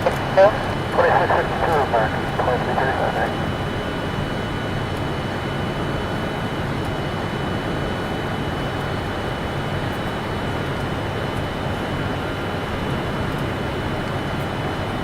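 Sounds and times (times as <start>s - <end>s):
low rumble and hiss: 0.0s - 3.6s
faint high whine: 0.0s - 4.5s.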